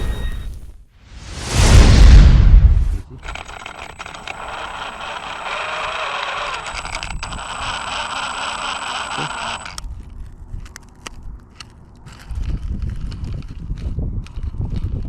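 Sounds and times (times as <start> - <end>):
electric motor whirring with whine: 3.2 - 9.8.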